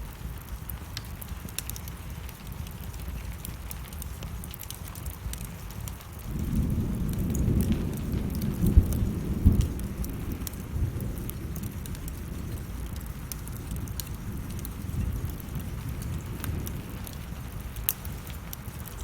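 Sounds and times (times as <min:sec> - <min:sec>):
rain falling: 0:00.0 - 0:19.0
wood fire crackling: 0:00.0 - 0:19.0
thunder rumbling and cracking: 0:05.1 - 0:19.0.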